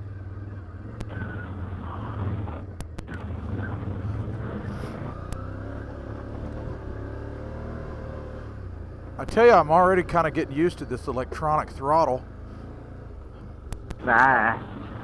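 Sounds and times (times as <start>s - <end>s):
atv engine running: 0.0s - 15.0s
sharp clicks: 2.6s - 5.4s, 13.2s - 15.0s.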